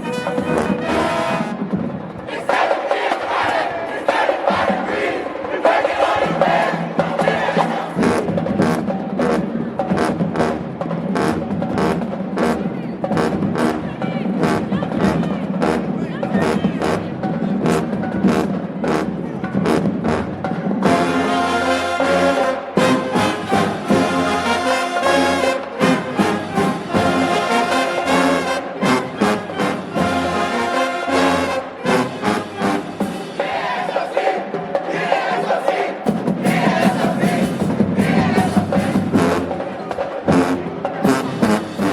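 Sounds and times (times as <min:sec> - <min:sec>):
crowd shouting: 0:00.0 - 0:08.2, 0:21.0 - 0:41.3
brass band playing: 0:00.0 - 0:41.9
steady drum beat: 0:00.0 - 0:41.9
drum hits: 0:33.0 - 0:41.9.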